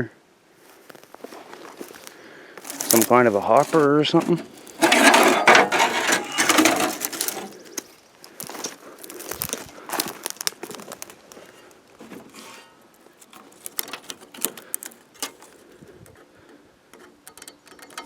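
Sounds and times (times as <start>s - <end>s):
footsteps crunching through twigs: 0.6s - 12.4s.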